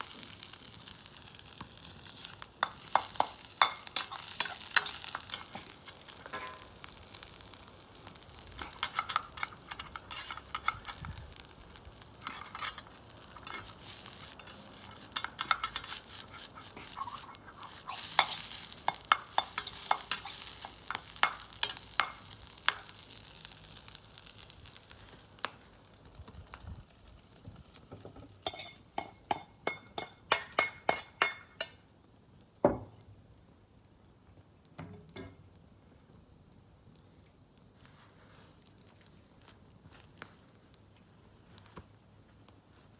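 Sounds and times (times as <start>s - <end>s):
food sizzling in a wok: 0.0s - 31.9s, 34.8s - 35.4s
metal utensil scraping a wok: 1.8s - 7.2s, 8.5s - 23.2s, 28.4s - 31.8s.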